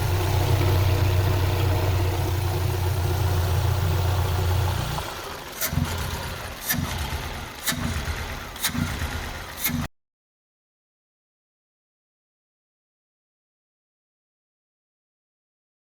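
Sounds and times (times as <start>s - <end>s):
car engine idling roughly: 0.0s - 9.9s.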